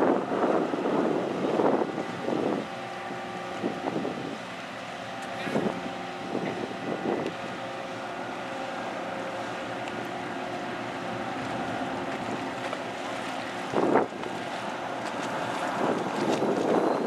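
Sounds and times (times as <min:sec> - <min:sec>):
wind gusts on microphone: 0:00.0 - 0:02.8, 0:13.6 - 0:14.6, 0:15.2 - 0:17.0
ferry engines droning: 0:00.0 - 0:17.0.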